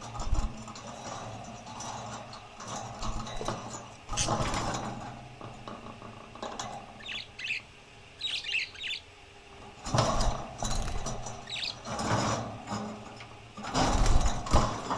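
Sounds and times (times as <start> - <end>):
rattling scraping noises: 0.0 - 7.1, 9.6 - 14.9
small parrots chirping: 7.0 - 9.1, 11.4 - 11.8.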